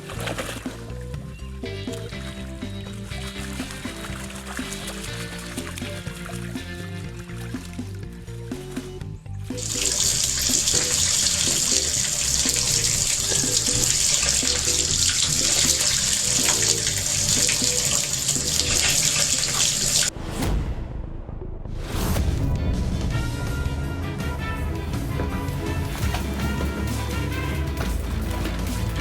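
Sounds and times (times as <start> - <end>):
background music: 0.0 - 29.0
tap water running: 1.9 - 8.1, 9.5 - 20.1.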